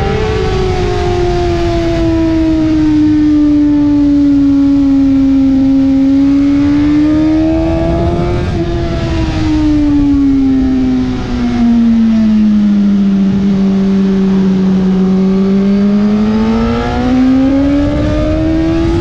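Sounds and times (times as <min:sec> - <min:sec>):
motorcycle engine at high revs: 0:00.0 - 0:19.0
wind rush: 0:00.0 - 0:19.0.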